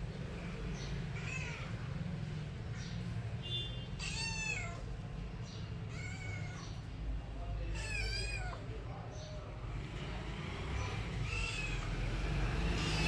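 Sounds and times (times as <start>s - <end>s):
cat meowing: 4.0s - 4.8s, 7.7s - 8.7s, 11.2s - 11.9s.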